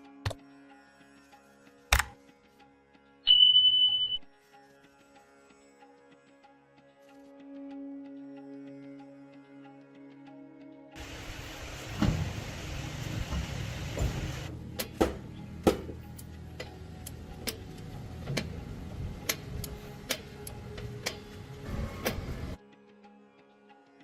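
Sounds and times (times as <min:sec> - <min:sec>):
hiss: 0:11.0 - 0:14.5.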